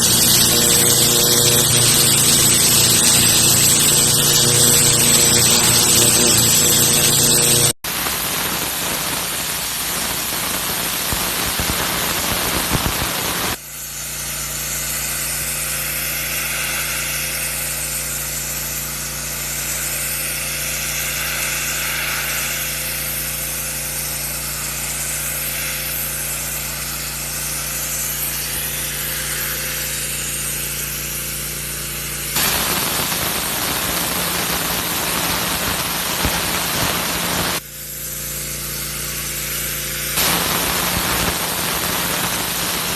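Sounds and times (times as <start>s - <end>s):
machine hum: 0.0s - 7.8s
pressure washer water hiss: 0.0s - 42.9s.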